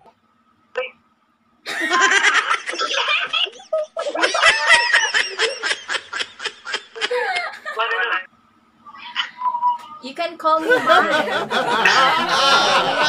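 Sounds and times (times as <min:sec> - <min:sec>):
people laughing: 0:01.7 - 0:08.3, 0:10.5 - 0:13.0.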